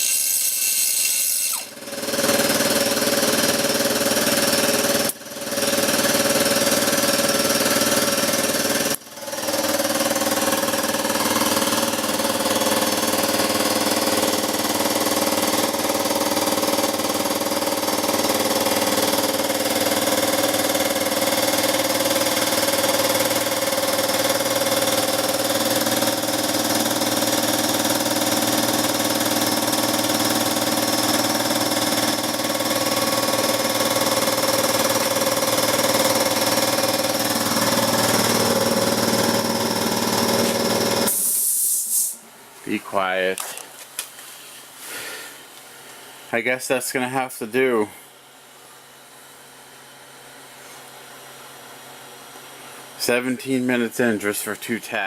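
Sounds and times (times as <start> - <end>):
angle grinder grinding metal: 0.0 - 2.7, 37.1 - 41.4.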